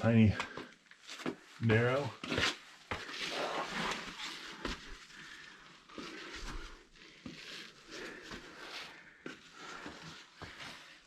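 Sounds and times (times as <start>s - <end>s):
person breathing hard: 4.4s - 11.0s.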